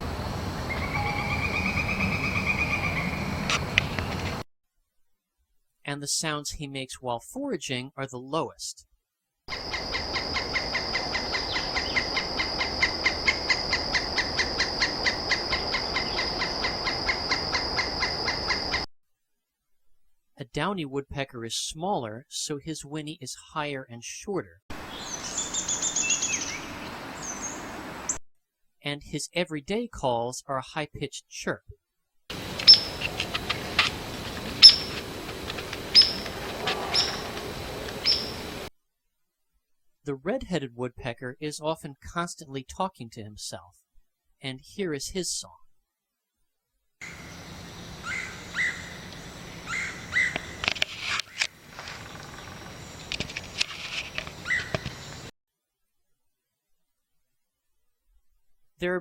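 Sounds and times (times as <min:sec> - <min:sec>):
background hiss: 0:00.0 - 0:04.4, 0:24.7 - 0:28.2, 0:32.3 - 0:40.5, 0:47.0 - 0:55.3
woodpecker high-pitched chirps: 0:00.7 - 0:04.0, 0:09.5 - 0:18.8, 0:24.9 - 0:27.6, 0:32.5 - 0:35.0, 0:35.8 - 0:38.6, 0:48.0 - 0:50.6, 0:54.4 - 0:55.3
woodpecker rapid short notes: 0:32.3 - 0:38.4
steady high-pitched hum: 0:32.3 - 0:38.7.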